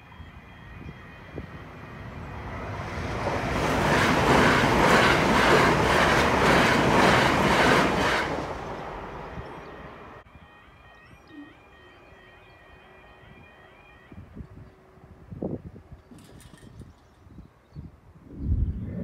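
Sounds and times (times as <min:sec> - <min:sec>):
train passing at speed: 0:00.0 - 0:16.0
wheels clickety-clack on rails: 0:02.6 - 0:08.8.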